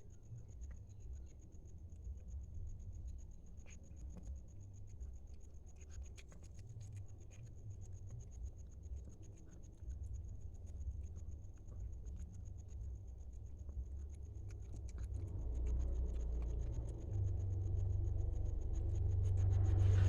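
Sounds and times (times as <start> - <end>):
faint high-pitched whine: 0.0 - 20.0
cat eating from plate: 5.0 - 12.4, 13.6 - 17.3.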